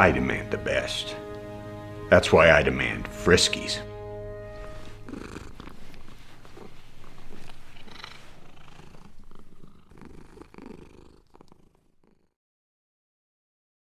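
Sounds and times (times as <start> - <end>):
cat purring: 2.2 - 12.4.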